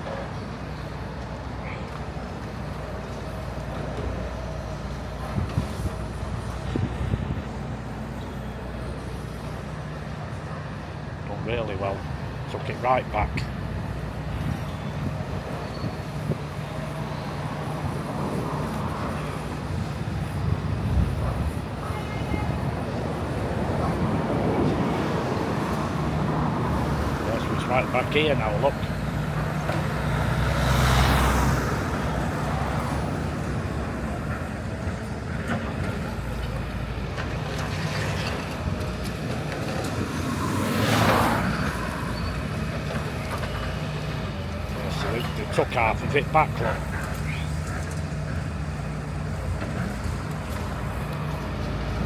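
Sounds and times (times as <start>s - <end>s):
road traffic rumble: 0.0s - 52.0s
vehicle passing by: 23.6s - 36.2s.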